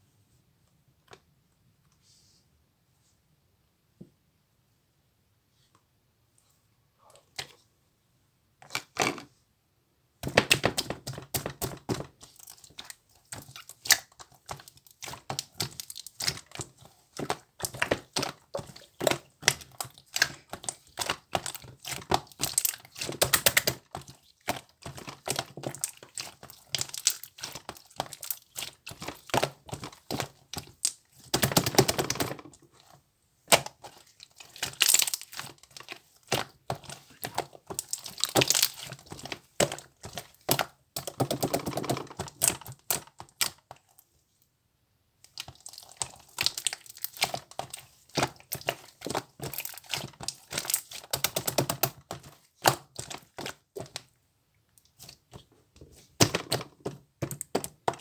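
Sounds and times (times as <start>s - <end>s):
rapid irregular clicking and tapping: 36.3s - 43.6s.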